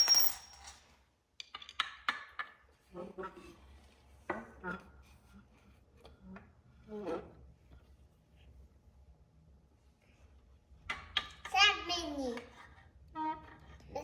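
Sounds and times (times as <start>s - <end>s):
sharp clink with ring: 0.0s - 0.8s.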